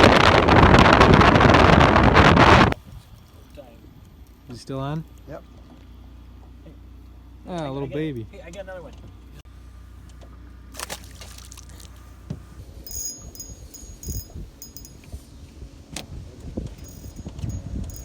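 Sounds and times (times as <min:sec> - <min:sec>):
low steady hum: 0:09.5 - 0:15.3
water lapping at boat: 0:10.7 - 0:12.3
fishing tackle rattling: 0:12.9 - 0:15.0, 0:16.8 - 0:18.0.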